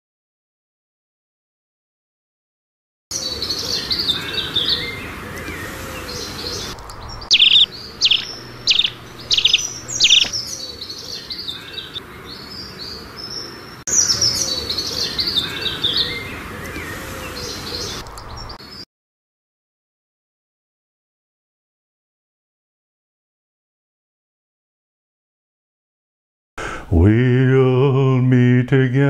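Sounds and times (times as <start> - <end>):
birds twittering: 3.1 - 18.8
bird notes sliding downward: 6.4 - 10.7.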